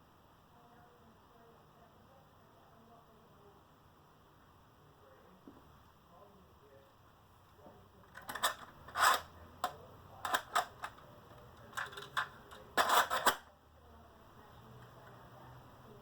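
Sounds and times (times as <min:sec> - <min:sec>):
small object clicking and clattering: 0:08.1 - 0:13.4.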